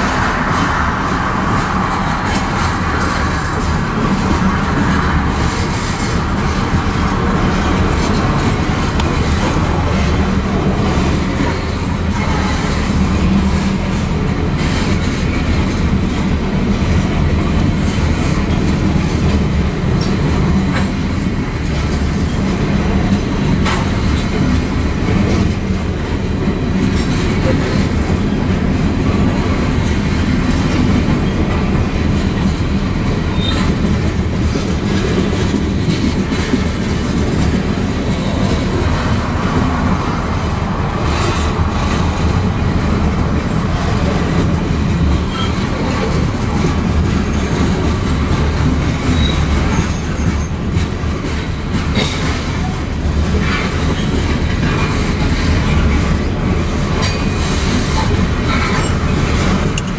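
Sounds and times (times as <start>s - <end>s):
freight train wheels clacking: 0.0s - 59.9s.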